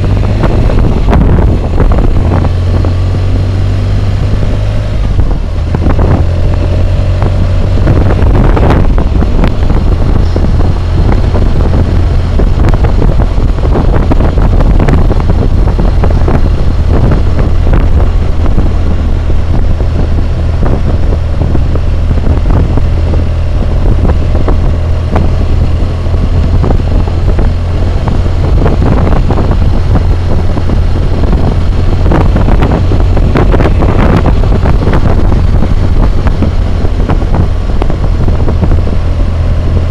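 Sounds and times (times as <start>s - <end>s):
faint motorcycle engine: 0.0s - 39.9s
wind buffeting microphone: 0.0s - 39.9s.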